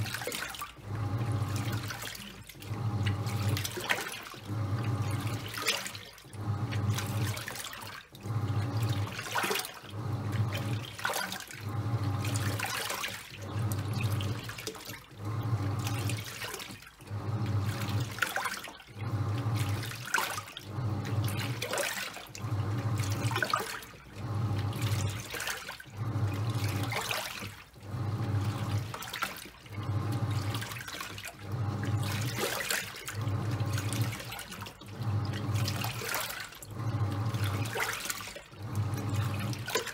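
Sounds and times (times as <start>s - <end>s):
washing machine motor humming: 0.0s - 39.9s
water sloshing in tub: 0.0s - 39.9s.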